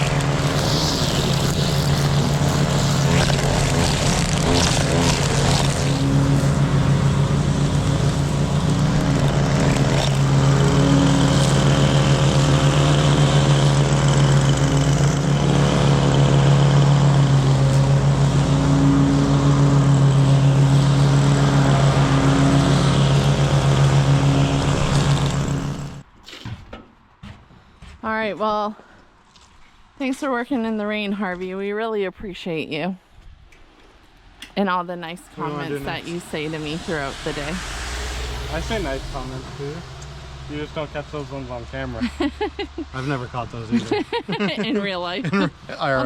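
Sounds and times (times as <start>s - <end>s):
riding mower engine running: 0.0s - 26.1s, 35.2s - 46.0s.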